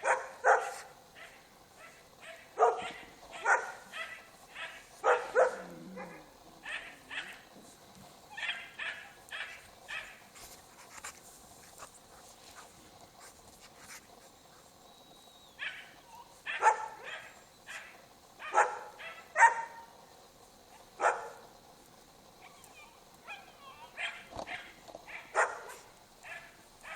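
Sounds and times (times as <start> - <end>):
dog barking: 0.0 - 7.5, 8.3 - 10.2, 15.6 - 19.9, 20.8 - 21.5, 23.2 - 26.9.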